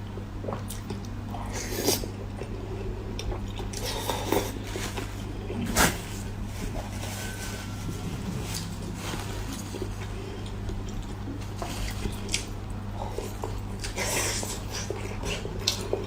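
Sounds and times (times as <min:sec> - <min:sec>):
steady low hum: 0:00.0 - 0:16.0
chewing and biting meat: 0:09.6 - 0:16.0.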